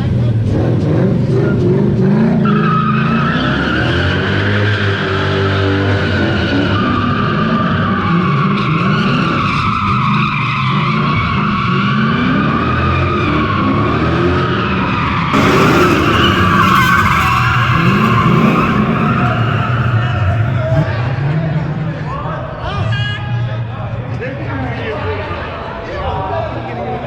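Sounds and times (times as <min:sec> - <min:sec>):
car engine revving: 0:15.4 - 0:20.8
tyre squeal: 0:15.4 - 0:20.8.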